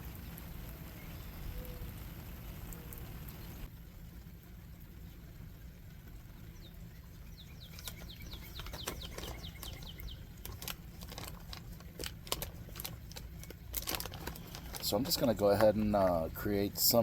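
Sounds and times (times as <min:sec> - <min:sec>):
bird chirping: 0:00.8 - 0:02.0, 0:06.5 - 0:11.3.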